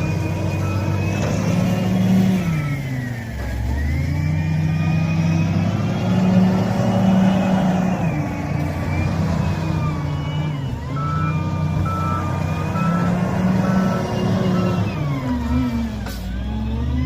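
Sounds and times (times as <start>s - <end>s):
reversing alarm beeping: 0.0s - 17.0s
wheel loader diesel engine: 0.0s - 17.0s.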